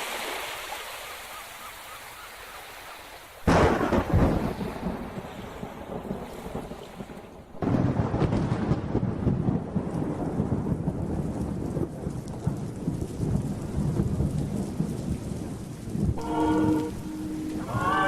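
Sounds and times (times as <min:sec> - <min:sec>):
heavy rain: 0:03.4 - 0:18.0
thunderclap rumbling: 0:03.5 - 0:18.0
held musical note: 0:16.2 - 0:18.0.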